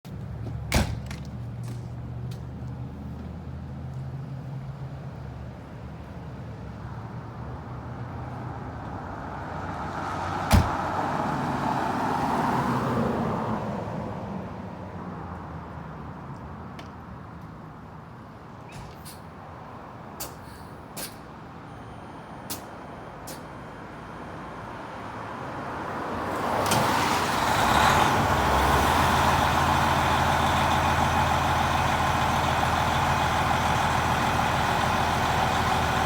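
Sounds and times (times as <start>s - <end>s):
fire engine humming: 19.0s - 36.0s.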